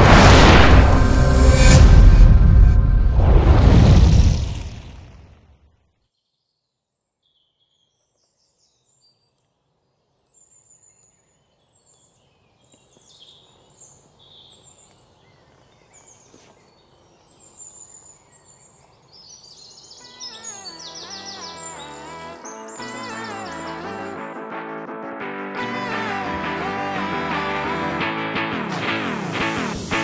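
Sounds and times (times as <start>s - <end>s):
intro music: 0.0s - 4.7s, 21.7s - 30.0s
small birds chirping: 6.2s - 24.3s
light outdoor hiss: 8.2s - 23.8s.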